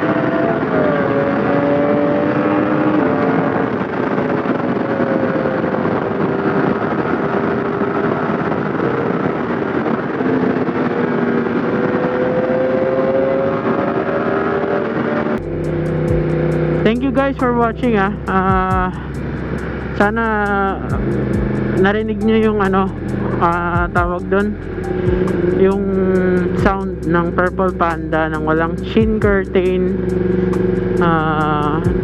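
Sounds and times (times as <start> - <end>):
motorcycle engine cruising: 0.0 - 32.0
wind rush on microphone: 0.0 - 32.0.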